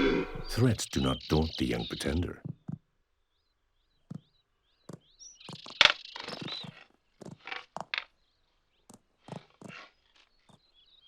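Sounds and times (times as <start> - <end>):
faint bird chirps: 0.0 - 2.4, 3.2 - 6.9.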